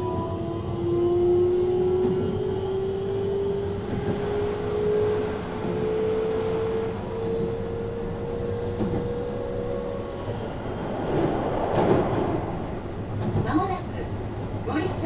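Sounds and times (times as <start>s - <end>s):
wheels rumbling on rail: 0.0s - 15.0s
brief rush of air: 10.0s - 13.5s.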